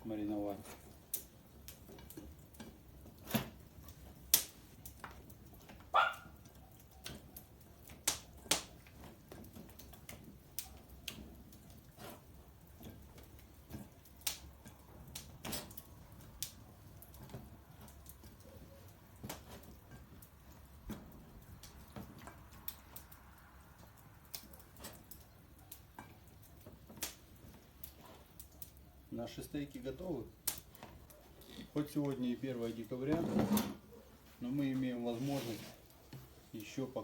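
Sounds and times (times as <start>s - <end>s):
wood crackling in fireplace: 0.0s - 37.0s.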